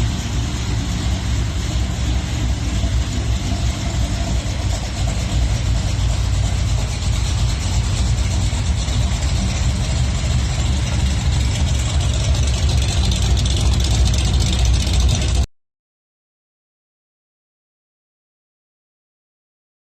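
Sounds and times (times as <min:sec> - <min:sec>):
truck engine idling: 0:00.0 - 0:15.5.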